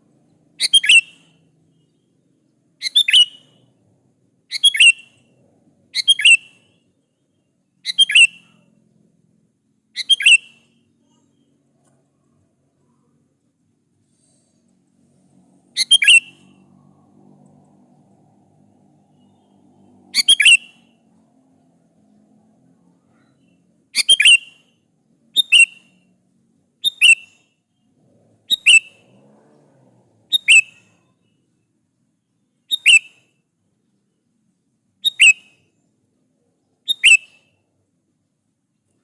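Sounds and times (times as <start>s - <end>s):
bird sharp call notes: 15.8s - 16.6s, 36.9s - 37.5s.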